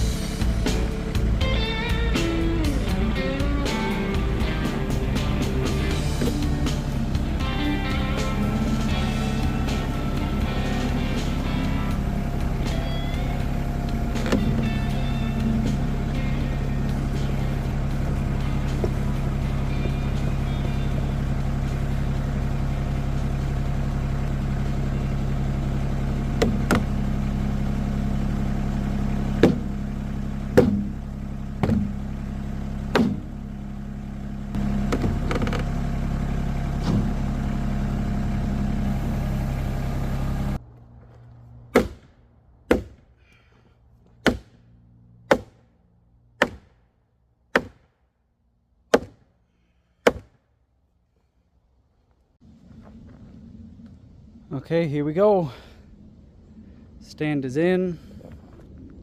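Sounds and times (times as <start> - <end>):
machine engine running: 0.0 - 41.4, 52.4 - 59.0
sharp knocks: 29.4 - 29.7, 30.6 - 30.9, 31.6 - 31.9, 32.9 - 33.3, 41.8 - 42.1, 42.7 - 43.0, 44.2 - 44.6, 45.3 - 45.7, 46.4 - 46.8, 47.5 - 47.9, 48.9 - 49.2, 50.0 - 50.4.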